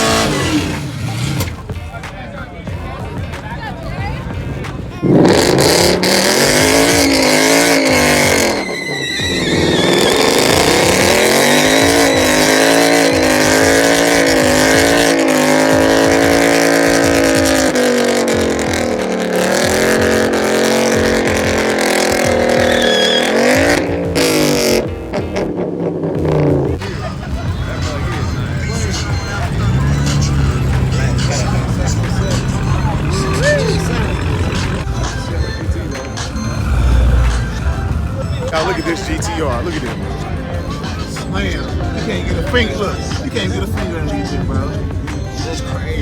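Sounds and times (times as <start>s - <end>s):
car engine revving high: 0.0s - 1.7s, 4.9s - 46.0s
tyre squeal: 5.1s - 18.7s, 19.8s - 25.4s, 26.2s - 43.2s.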